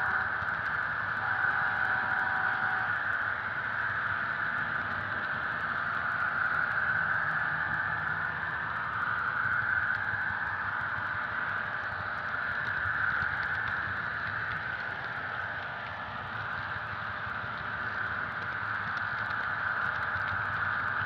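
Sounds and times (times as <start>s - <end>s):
model train whirring: 0.0s - 5.5s.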